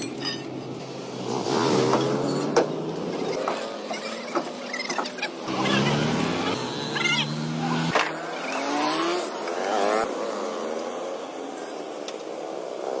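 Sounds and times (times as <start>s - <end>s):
truck engine revving: 0.8s - 4.3s, 5.1s - 11.0s.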